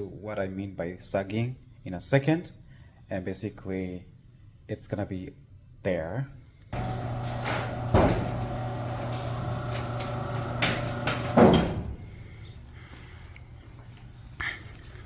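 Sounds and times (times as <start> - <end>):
garage door clunk: 6.8 - 12.2
garage door opener motor hum: 6.8 - 12.4
garage door knock: 7.3 - 8.6, 10.4 - 11.9.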